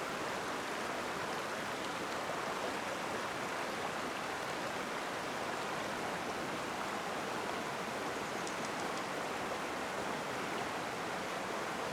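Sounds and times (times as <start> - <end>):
stream water rushing: 0.0 - 11.9
faint high ticks: 8.3 - 9.2.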